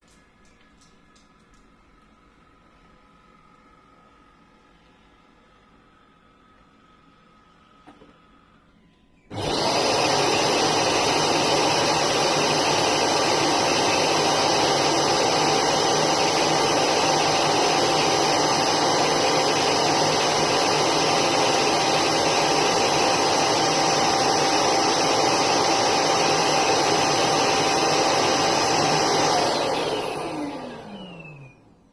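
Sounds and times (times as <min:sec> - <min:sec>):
robot vacuum motor whining: 0:09.3 - 0:31.7.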